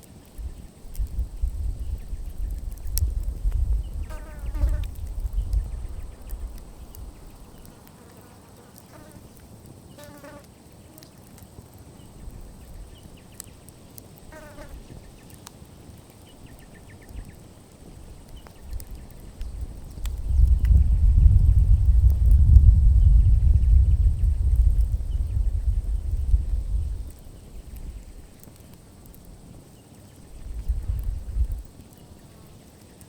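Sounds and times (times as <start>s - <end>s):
campfire crackling and popping: 0.0s - 33.0s
low rumble: 20.2s - 27.1s.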